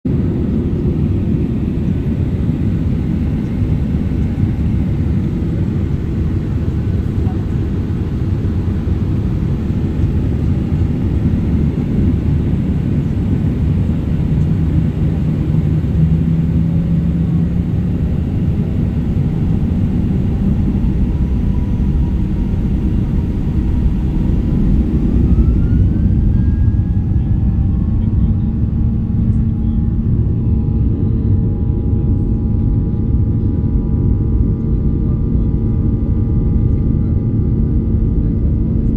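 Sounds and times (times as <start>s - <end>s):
jet engines roaring at takeoff: 0.1s - 38.9s
rising whine: 7.5s - 32.7s.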